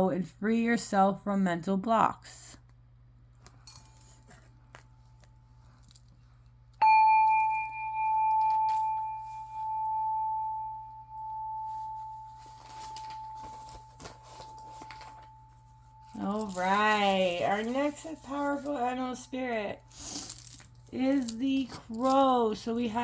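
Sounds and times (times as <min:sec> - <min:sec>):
metal chime ringing: 0:06.8 - 0:20.4
cards or paper rustling: 0:12.4 - 0:15.6.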